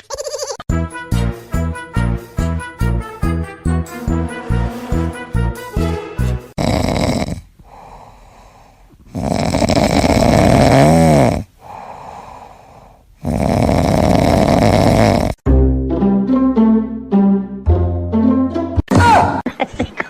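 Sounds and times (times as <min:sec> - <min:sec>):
pet snoring: 0:06.6 - 0:08.0, 0:09.1 - 0:12.1, 0:13.2 - 0:15.4
quiet breaths: 0:07.2 - 0:15.4.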